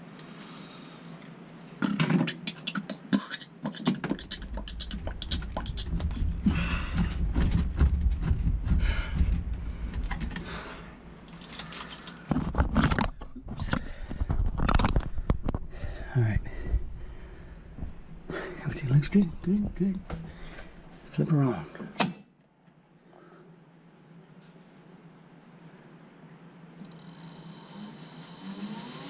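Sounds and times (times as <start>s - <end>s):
low handling rumble: 4.4s - 11.3s.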